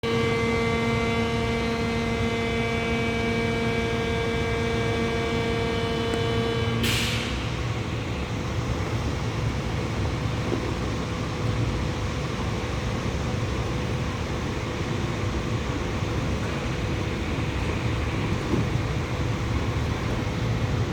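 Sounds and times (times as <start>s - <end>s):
crane engine running: 0.0s - 20.9s
steady droning tone: 0.0s - 20.9s
short hiss: 6.8s - 7.4s.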